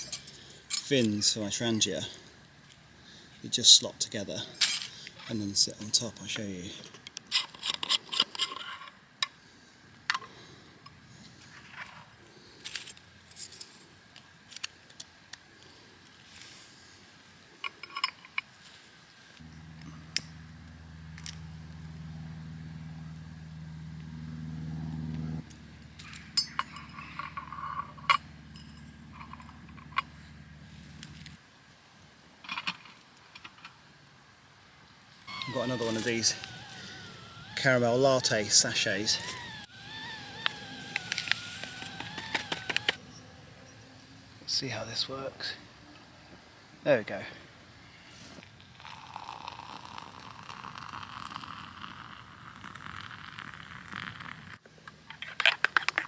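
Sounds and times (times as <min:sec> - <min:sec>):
light metal clinks: 0:00.0 - 0:01.2, 0:25.8 - 0:30.2
low engine drone: 0:19.4 - 0:31.4
spirit burner hissing: 0:35.2 - 0:43.0.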